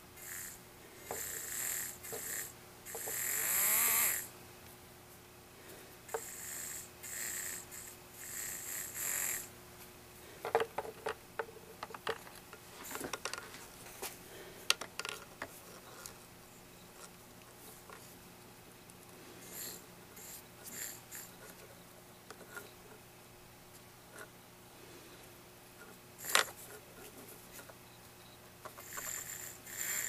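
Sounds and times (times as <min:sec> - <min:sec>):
small electric motor whirring: 0:00.2 - 0:04.3, 0:06.1 - 0:09.5, 0:28.8 - 0:30.0.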